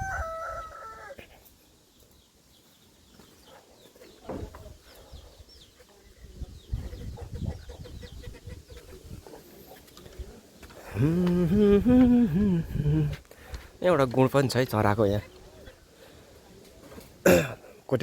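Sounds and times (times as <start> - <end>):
rooster crowing: 0.0 - 1.2
chickens clucking: 0.0 - 17.2.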